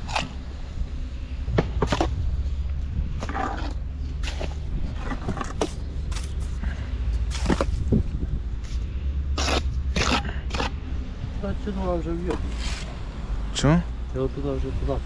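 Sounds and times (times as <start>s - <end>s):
knocks and scrapes: 0.0s - 0.4s, 1.5s - 10.8s, 12.2s - 13.0s
low steady rumble: 0.0s - 14.2s.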